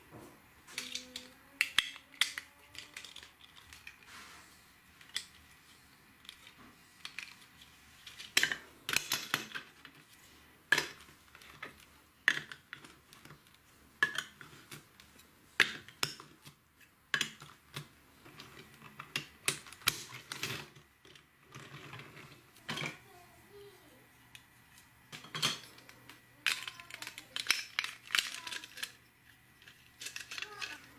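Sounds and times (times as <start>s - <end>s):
plastic toy bricks clicking: 0.7s - 4.1s, 5.0s - 5.4s, 6.2s - 10.0s, 10.7s - 22.0s, 25.2s - 29.0s, 29.6s - 30.9s.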